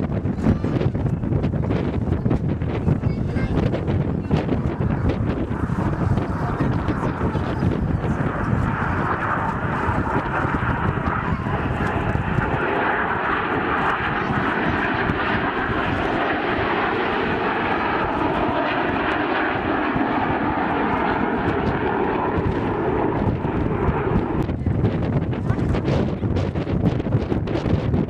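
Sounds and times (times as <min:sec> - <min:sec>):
aircraft engine drone: 0:00.0 - 0:28.0.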